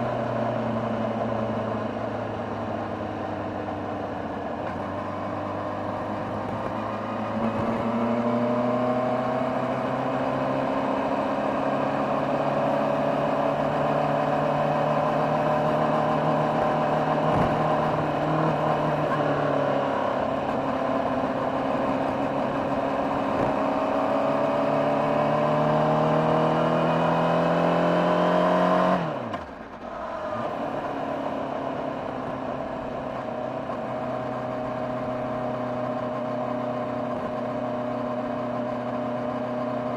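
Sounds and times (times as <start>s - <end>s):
motorcycle engine revving: 4.6s - 29.6s.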